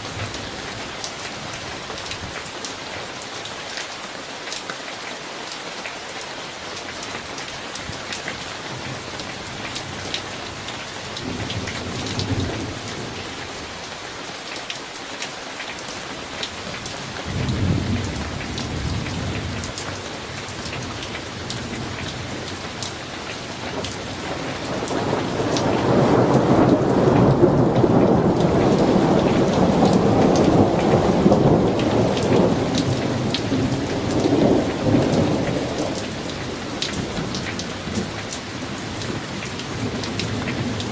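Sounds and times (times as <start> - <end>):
steady rain: 0.0 - 40.9
thunder rumbling: 23.7 - 38.2.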